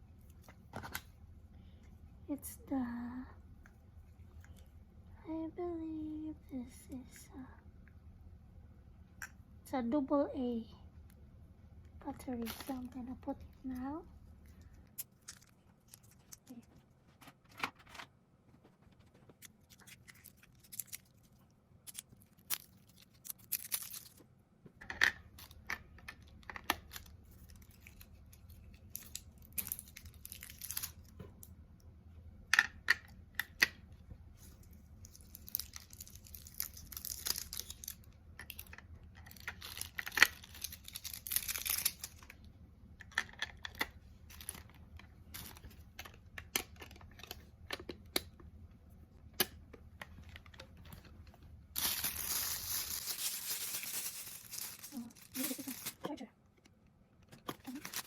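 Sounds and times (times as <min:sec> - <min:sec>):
plastic wrapping crinkling and tearing: 0:12.2 - 0:13.8, 0:19.2 - 0:24.2, 0:26.4 - 0:31.2, 0:34.4 - 0:42.4, 0:43.6 - 0:46.2, 0:51.7 - 0:56.0, 0:57.6 - 0:58.0
clicks and taps of plastic parts: 0:43.0 - 0:48.5.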